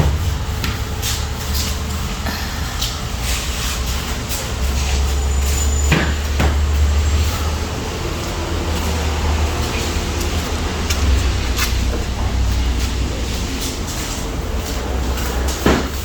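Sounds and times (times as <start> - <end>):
low rumble: 7.1 - 15.7.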